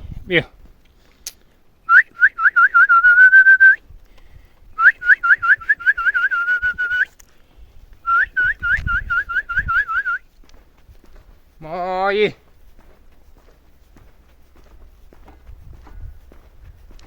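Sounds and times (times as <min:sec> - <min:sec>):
person whistling rising chirps: 0:01.9 - 0:03.8, 0:04.8 - 0:07.1, 0:08.1 - 0:10.2.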